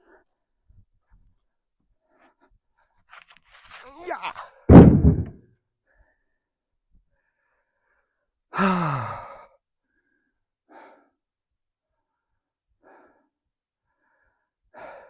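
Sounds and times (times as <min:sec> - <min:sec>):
faint breath: 0:05.8 - 0:11.2, 0:11.8 - 0:15.0
man sighing: 0:08.6 - 0:09.4.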